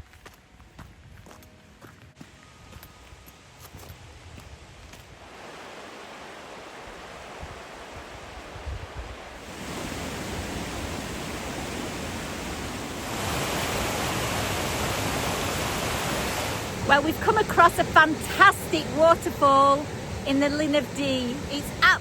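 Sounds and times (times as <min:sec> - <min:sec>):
waterfall rushing: 0:05.2 - 0:22.0.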